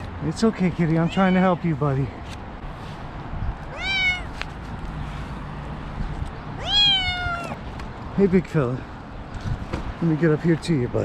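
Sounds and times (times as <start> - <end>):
cat meowing: 1.0 - 1.6, 3.7 - 4.3, 6.6 - 7.6.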